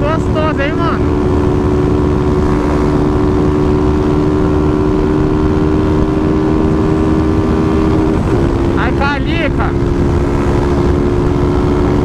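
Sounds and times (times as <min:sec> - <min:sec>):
motorcycle engine at high revs: 0:00.0 - 0:12.0
road and wind rumble: 0:00.0 - 0:12.0.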